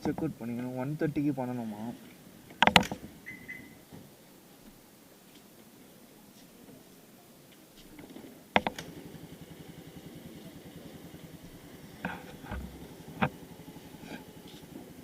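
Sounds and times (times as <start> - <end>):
motorcycle engine idling: 0.0 - 3.8, 8.0 - 15.0
sharp clicks: 2.5 - 3.1.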